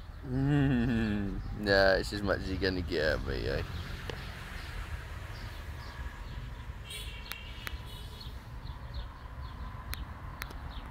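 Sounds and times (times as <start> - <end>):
small birds chirping: 0.0 - 10.9.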